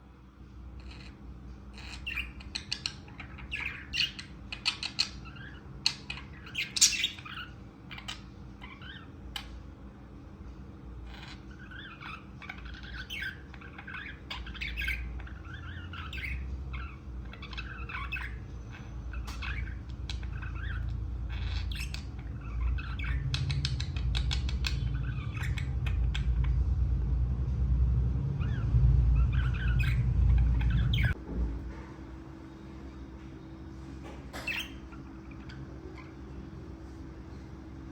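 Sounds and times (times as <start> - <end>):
budgies chirping and chattering: 0.7 - 9.8, 11.0 - 27.1, 28.2 - 31.2, 34.3 - 37.6
low rumble: 22.0 - 32.2.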